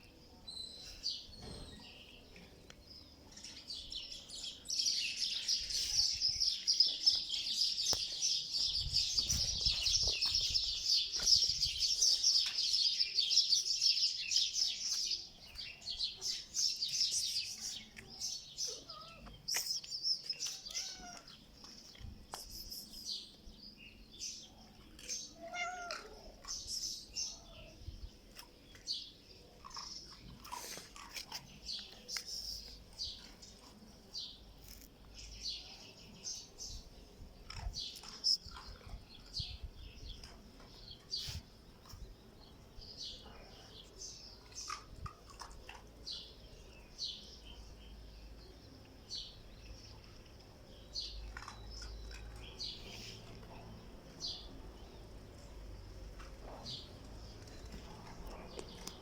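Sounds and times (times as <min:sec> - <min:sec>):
cat meowing: 0:18.7 - 0:19.3, 0:20.7 - 0:21.3, 0:25.4 - 0:26.2.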